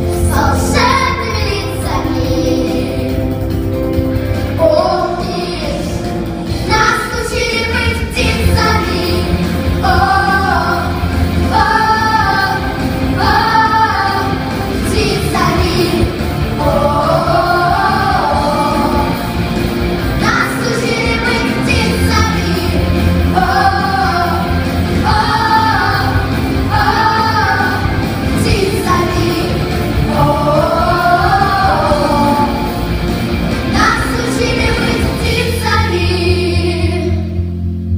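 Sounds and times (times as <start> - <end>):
pop backing track with bass: 0.0 - 37.9
women singing pop song: 20.2 - 32.8.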